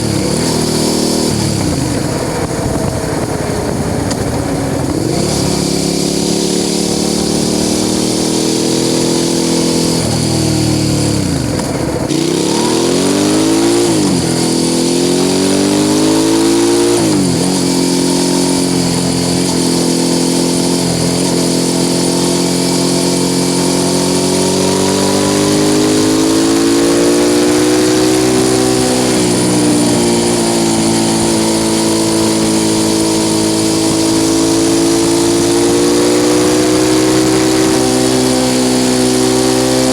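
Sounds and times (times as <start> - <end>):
wind rush on microphone: 0.0 - 5.8
motorcycle engine revving: 0.0 - 39.9.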